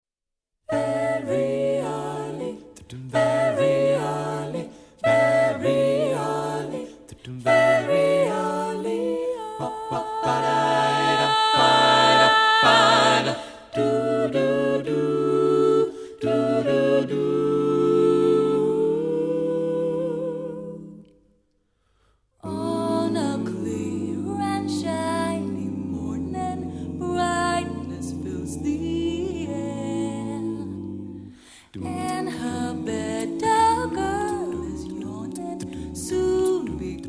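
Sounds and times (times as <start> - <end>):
voices singing in close harmony: 0.7 - 21.2, 22.4 - 37.0.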